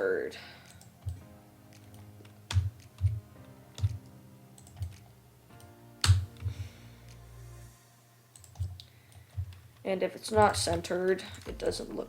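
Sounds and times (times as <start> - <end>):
soft background music: 0.0 - 12.0
computer keyboard keystrokes: 0.6 - 6.5, 8.4 - 9.6.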